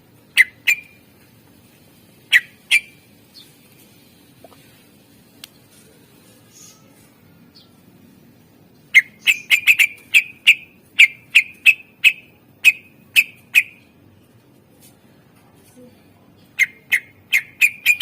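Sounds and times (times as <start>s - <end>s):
bird calling sharp repeated notes: 0.3s - 1.0s, 2.3s - 3.6s, 8.8s - 14.0s, 16.6s - 18.0s.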